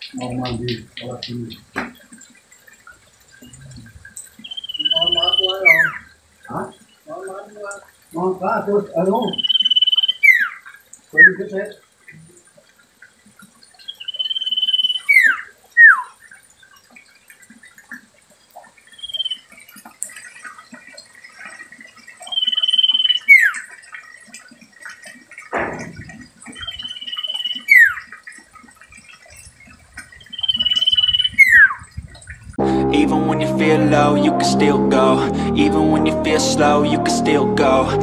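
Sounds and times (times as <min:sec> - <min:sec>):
bird whistling song: 0:04.4 - 0:06.1, 0:09.2 - 0:10.6, 0:13.9 - 0:16.1, 0:19.0 - 0:19.4, 0:22.3 - 0:23.5, 0:30.3 - 0:31.7
brief thump: 0:25.5 - 0:26.2.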